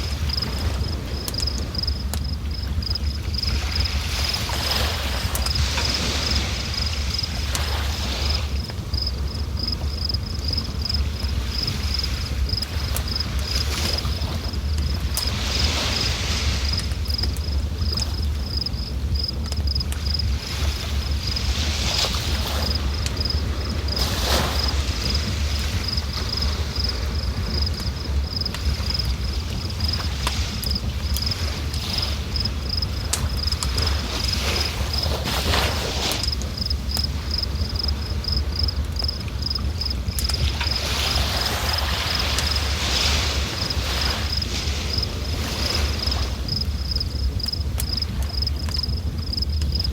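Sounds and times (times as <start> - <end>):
cricket chirping: 0.0 - 49.9.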